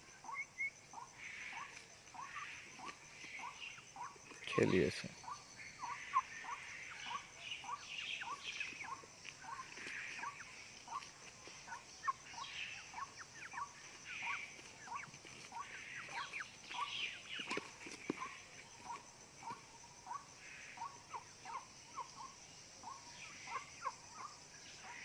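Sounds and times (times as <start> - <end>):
poultry peeping: 0.2 - 25.0.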